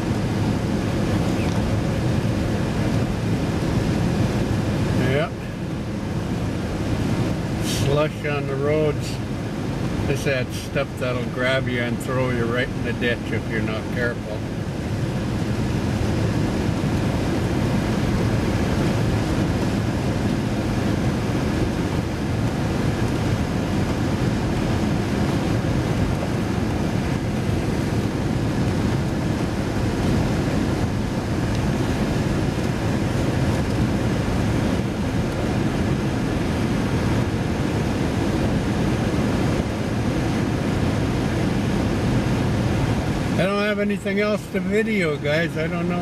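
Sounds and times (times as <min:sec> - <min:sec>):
tyres on slushy road: 0:00.0 - 0:46.0
vehicle driving rumble: 0:00.0 - 0:46.0.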